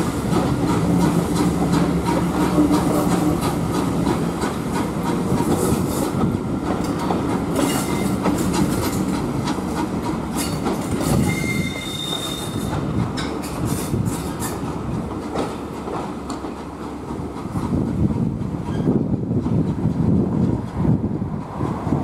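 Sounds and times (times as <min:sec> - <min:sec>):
train coaches rumbling past: 0:00.0 - 0:22.0
wheel squeal: 0:11.1 - 0:12.7.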